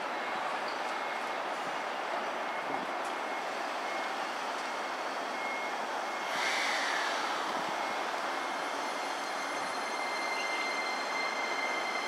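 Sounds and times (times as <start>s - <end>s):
electric train braking: 6.2s - 12.0s.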